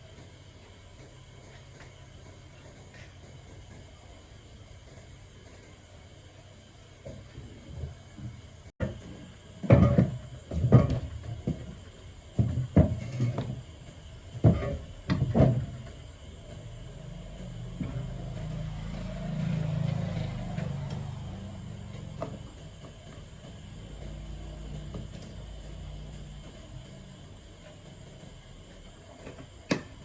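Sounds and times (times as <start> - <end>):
sharp knocks and clunks: 9.6 - 11.8, 12.4 - 13.6.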